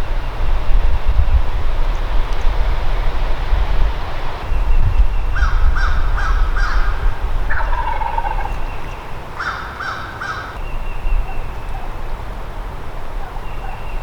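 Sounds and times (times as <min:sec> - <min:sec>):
wild turkey calling: 0:05.3 - 0:12.1.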